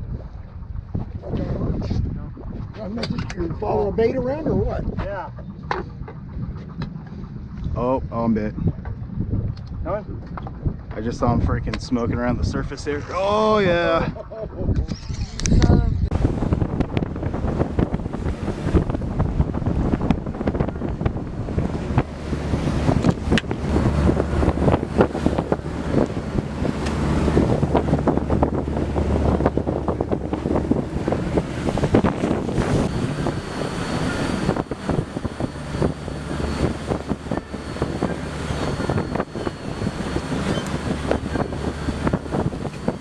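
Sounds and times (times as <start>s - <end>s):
boat engine hum: 0.0s - 43.0s
wind buffeting microphone: 0.0s - 43.0s
water wash: 16.1s - 43.0s.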